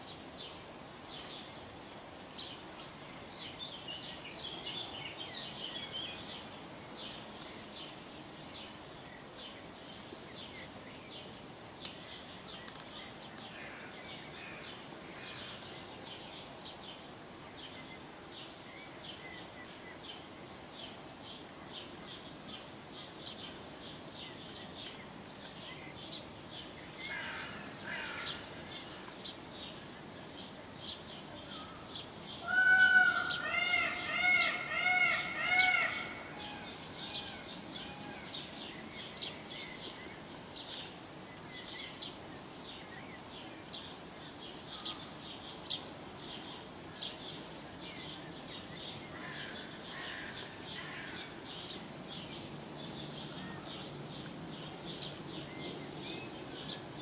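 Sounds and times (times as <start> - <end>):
small birds chirping: 0.1 - 57.0
loud arched bird calls: 31.6 - 39.1.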